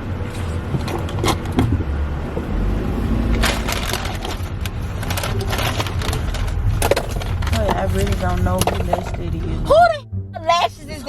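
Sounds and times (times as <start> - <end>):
car rumble: 0.0 - 11.0
crinkling crackling rustle: 3.3 - 9.5.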